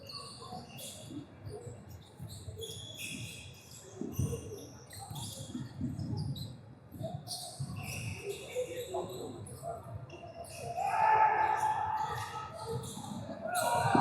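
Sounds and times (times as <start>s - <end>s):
sneakers squeaking on floor: 2.0s - 6.6s, 7.2s - 9.4s, 12.6s - 14.0s.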